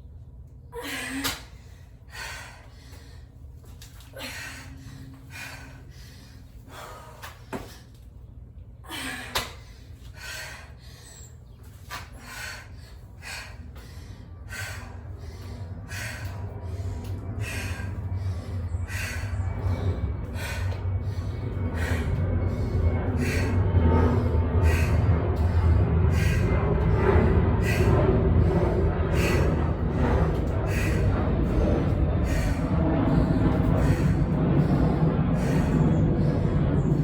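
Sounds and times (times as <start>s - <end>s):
woman breathing hard: 0.7s - 8.2s, 8.8s - 37.0s
low rumble: 1.0s - 37.0s.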